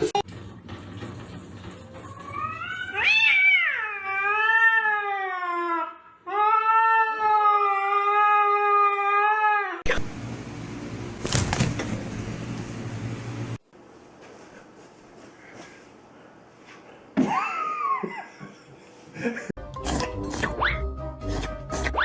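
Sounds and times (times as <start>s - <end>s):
cat yowling: 2.3s - 9.9s.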